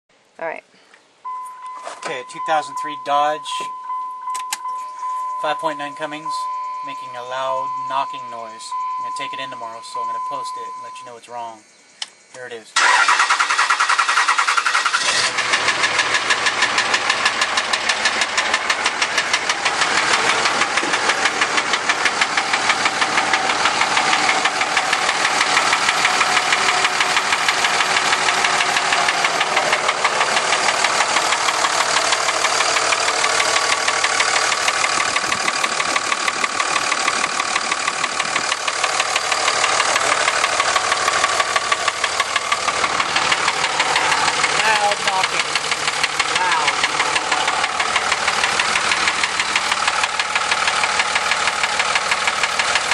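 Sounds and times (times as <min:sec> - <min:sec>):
diesel engine idling: 0:01.3 - 0:12.0, 0:12.8 - 0:52.9
engine knocking: 0:12.8 - 0:52.9.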